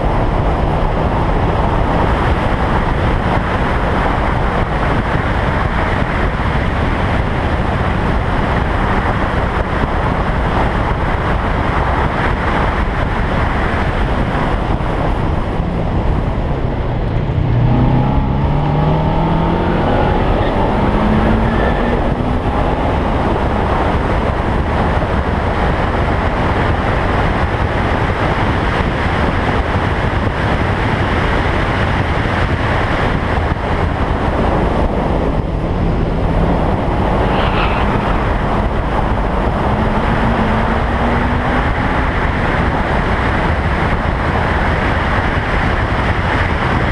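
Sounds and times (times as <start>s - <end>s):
wind and road noise: 0.0s - 46.9s
racing car engine accelerating: 13.7s - 26.8s, 33.8s - 46.9s.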